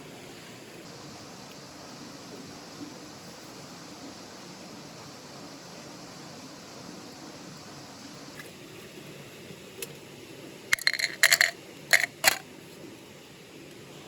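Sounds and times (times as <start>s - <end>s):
steady hiss: 0.0s - 14.0s
metal cookware clanking: 10.8s - 12.4s.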